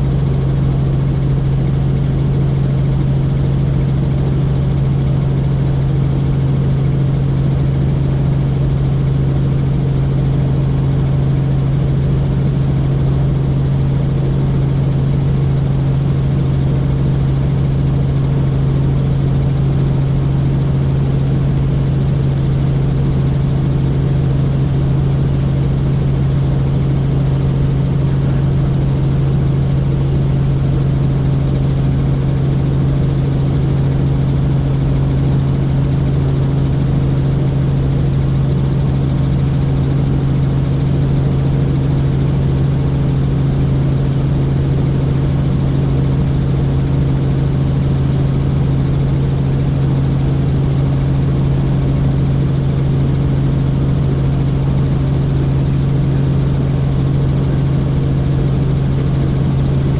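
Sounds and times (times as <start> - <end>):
helicopter rotor and engine drone: 0.0 - 59.9.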